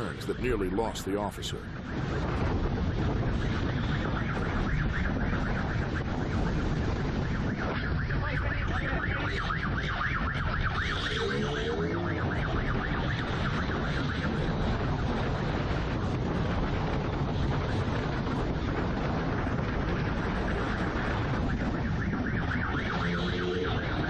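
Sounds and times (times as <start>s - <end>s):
wind rushing: 0.0s - 24.0s
siren warbling: 7.3s - 15.2s, 20.1s - 24.0s.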